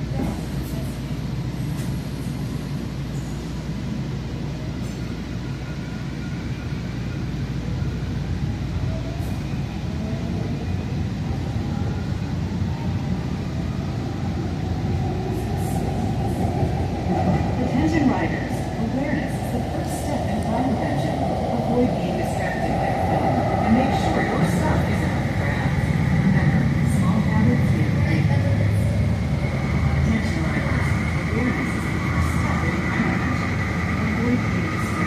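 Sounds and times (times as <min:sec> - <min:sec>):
faint rising train whine: 0:00.0 - 0:35.0
train car rumble: 0:10.5 - 0:35.0.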